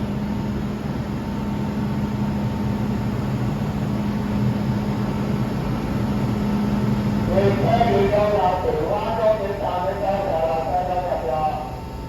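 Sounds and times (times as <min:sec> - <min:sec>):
train humming: 0:05.3 - 0:12.0.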